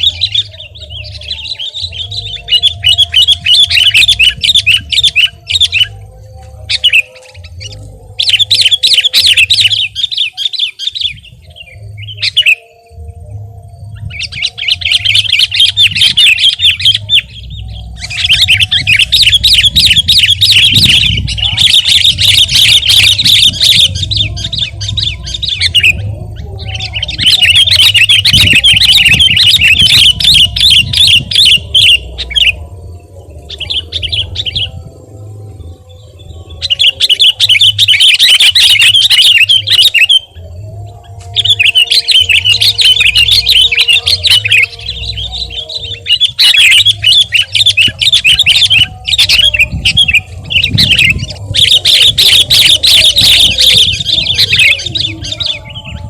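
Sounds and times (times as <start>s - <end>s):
bulbul singing: 0.0s - 56.0s.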